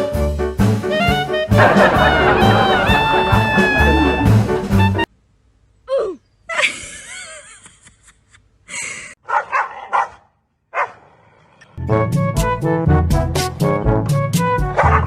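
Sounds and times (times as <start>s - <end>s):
brass music: 0.8s - 5.1s.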